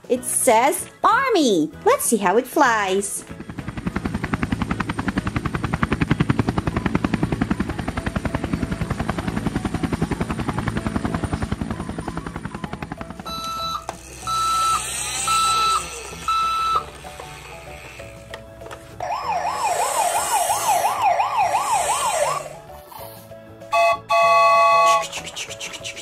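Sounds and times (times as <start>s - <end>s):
helicopter rotor chopping: 2.2s - 22.8s.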